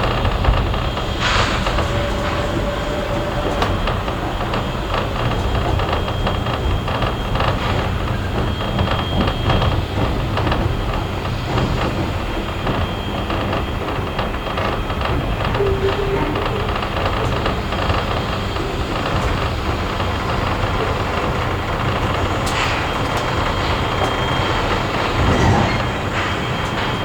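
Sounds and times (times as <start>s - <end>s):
train carriage rumbling on rails: 0.0s - 27.0s
steam hiss: 1.0s - 3.5s.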